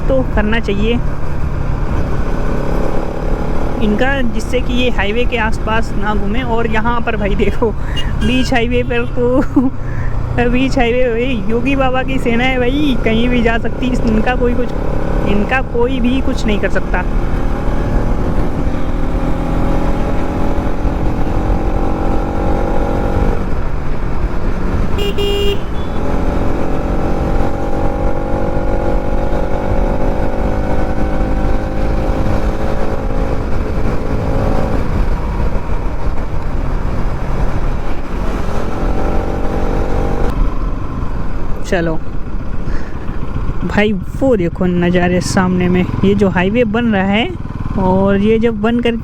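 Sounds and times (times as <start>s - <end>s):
motorcycle engine: 0.0s - 49.0s
horn beep: 7.9s - 9.2s, 25.0s - 26.1s.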